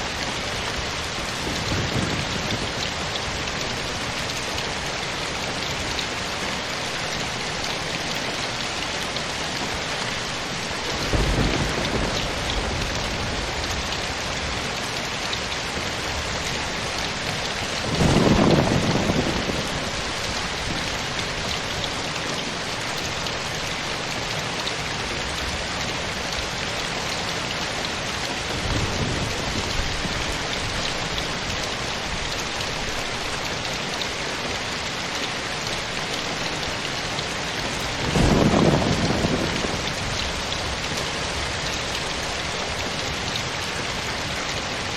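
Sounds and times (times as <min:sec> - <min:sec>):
steady rainfall: 0:00.0 - 0:44.9
thunder rumbling: 0:10.8 - 0:14.7, 0:15.7 - 0:22.0, 0:28.5 - 0:31.5, 0:35.9 - 0:44.7.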